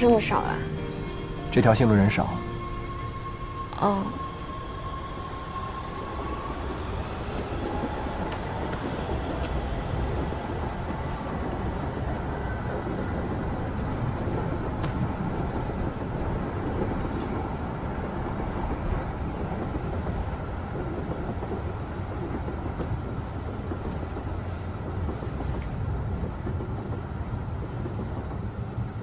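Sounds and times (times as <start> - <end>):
subway train rumble: 0.0 - 29.0.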